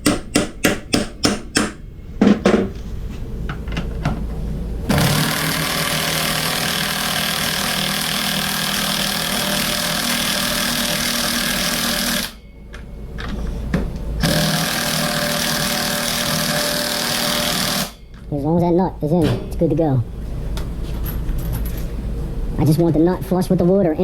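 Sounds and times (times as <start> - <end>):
impact wrench hammering: 0.0 - 2.8.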